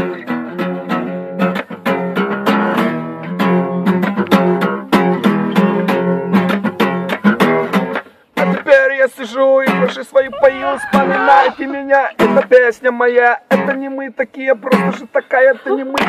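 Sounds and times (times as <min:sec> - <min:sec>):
guitar chords strummed: 0:00.0 - 0:08.7.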